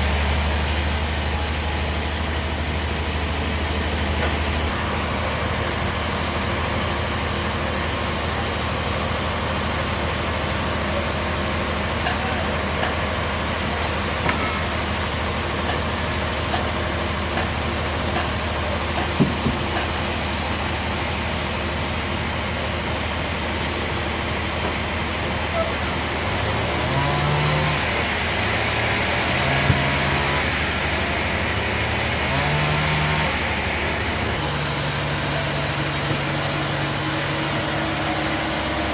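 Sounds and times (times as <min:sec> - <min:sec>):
bandsaw running: 0:26.2 - 0:38.9.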